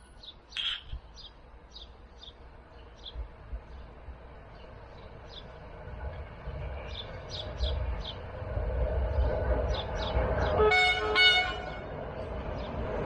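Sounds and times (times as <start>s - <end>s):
small bird chirping: 0.0s - 3.2s
train rumbling: 0.0s - 13.0s.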